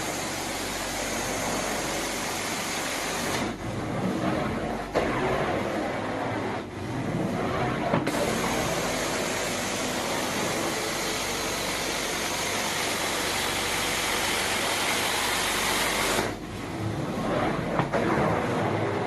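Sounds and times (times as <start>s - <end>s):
carpet cleaning machine hissing: 0.0s - 3.6s, 8.1s - 16.4s.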